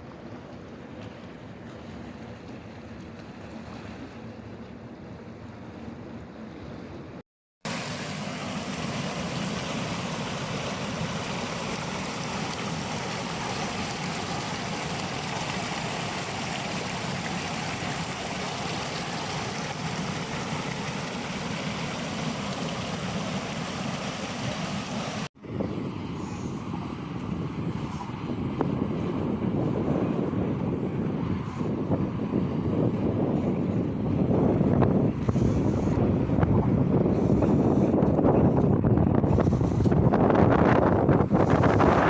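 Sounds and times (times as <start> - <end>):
flowing water rushing: 7.6 - 25.3.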